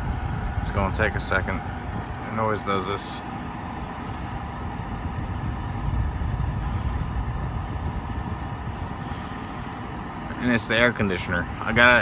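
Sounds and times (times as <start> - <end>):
air conditioner hum and airflow: 0.0 - 12.0.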